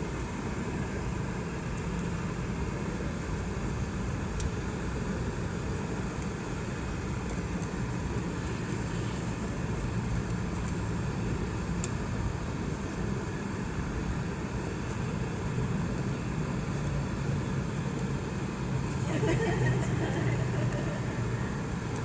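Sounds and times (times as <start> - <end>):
jet engines droning in cabin: 0.0 - 22.0
cabin air noise: 10.4 - 22.0.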